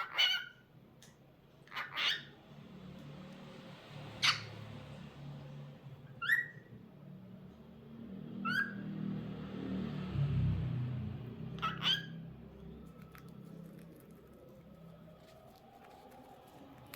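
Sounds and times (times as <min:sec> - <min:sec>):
cockatiel chirping and whistling: 0:06.2 - 0:06.7.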